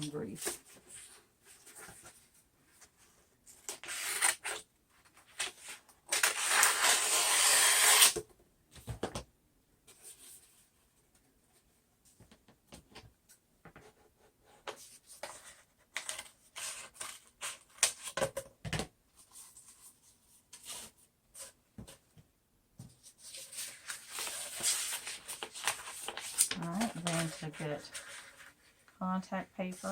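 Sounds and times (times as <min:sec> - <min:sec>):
plastic sheets rustling: 0:23.0 - 0:28.8.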